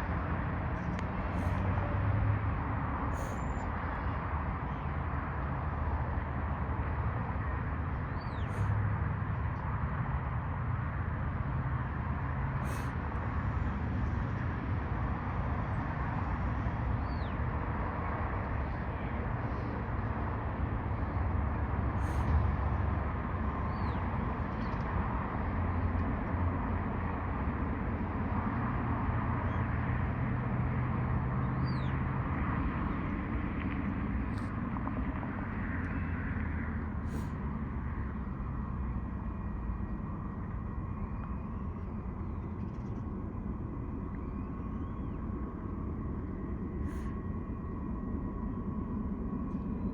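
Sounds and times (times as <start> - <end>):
low drone: 0.0 - 49.9
low rumble of vehicles: 0.0 - 49.9
bird chirp: 8.0 - 8.7, 31.4 - 32.0.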